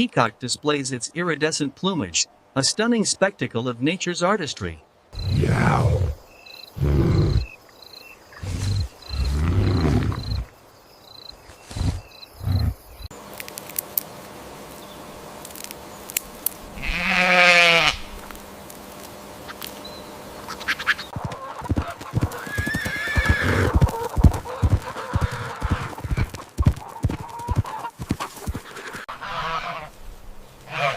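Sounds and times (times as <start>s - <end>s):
farm animal bleating: 16.7s - 18.2s, 29.1s - 30.0s, 30.7s - 30.9s
high-pitched animal call: 16.8s - 18.1s, 29.1s - 29.9s.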